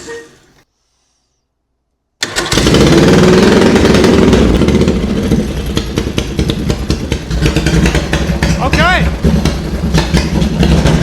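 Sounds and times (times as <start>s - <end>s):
lawnmower engine starting and revving: 2.2s - 11.0s.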